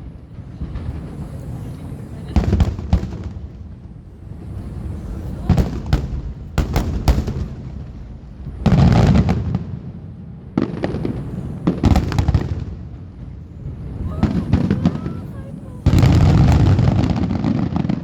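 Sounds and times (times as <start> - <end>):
fireworks booming: 0.0 - 18.0.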